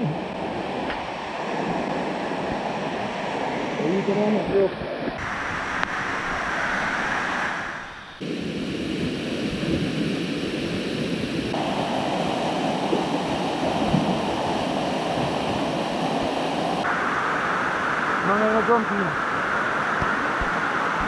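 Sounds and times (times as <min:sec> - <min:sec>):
waterfall rushing: 0:11.5 - 0:21.0.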